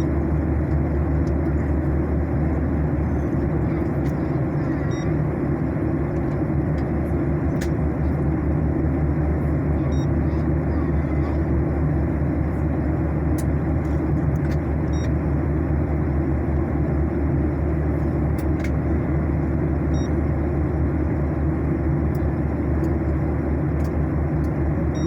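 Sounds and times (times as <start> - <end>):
airliner cabin engine rumble: 0.0 - 25.0
faint short beep: 4.8 - 5.2, 9.9 - 10.2.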